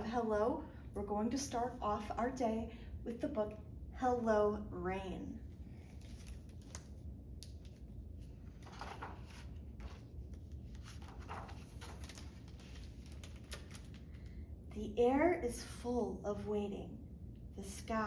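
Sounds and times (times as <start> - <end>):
low steady hum: 0.0 - 18.0
paper rustling: 5.8 - 14.3.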